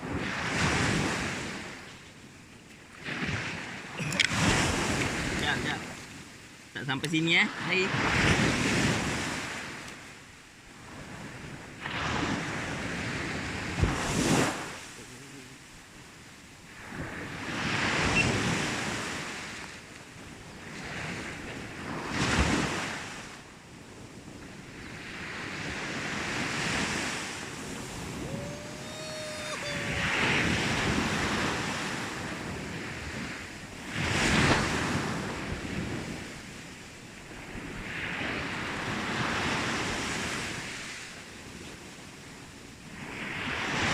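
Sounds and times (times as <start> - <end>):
sea waves breaking on sand: 0.0 - 43.9
wind buffeting microphone: 16.7 - 36.7.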